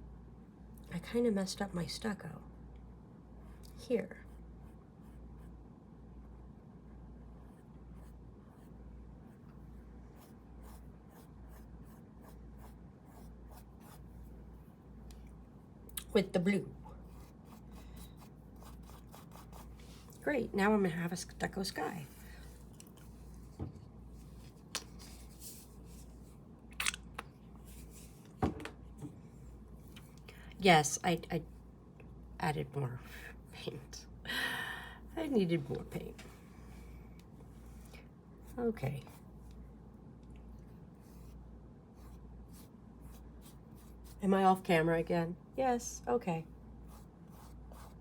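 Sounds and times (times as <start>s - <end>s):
low room hum: 0.0s - 48.0s
paintbrush strokes: 16.9s - 20.3s, 22.0s - 26.4s, 27.5s - 28.3s, 40.7s - 44.2s, 46.8s - 48.0s.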